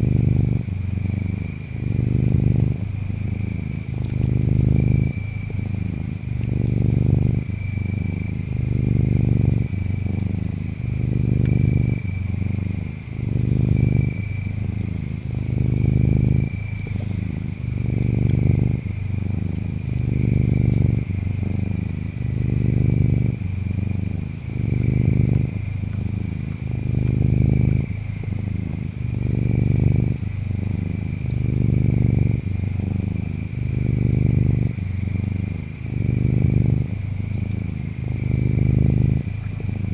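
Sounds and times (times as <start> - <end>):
cat purring: 0.0 - 39.9
insects trilling: 0.0 - 39.9.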